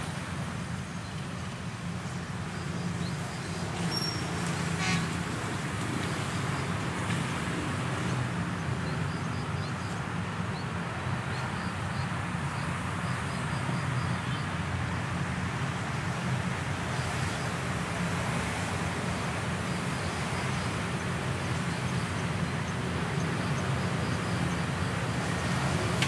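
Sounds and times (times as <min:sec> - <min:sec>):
trains rumbling on tracks: 0:00.0 - 0:26.0
high train toot: 0:03.9 - 0:05.2.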